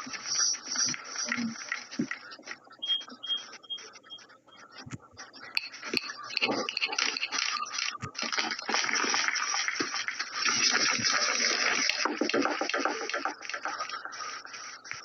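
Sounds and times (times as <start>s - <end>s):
steady rushing hiss: 0.0s - 2.6s, 5.7s - 15.0s
scattered clatter: 5.6s - 15.0s.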